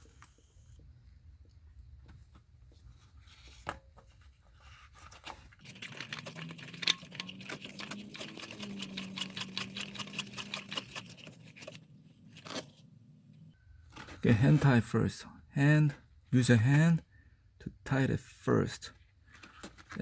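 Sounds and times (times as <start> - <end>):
oil filter clicking and scraping: 3.3 - 12.9.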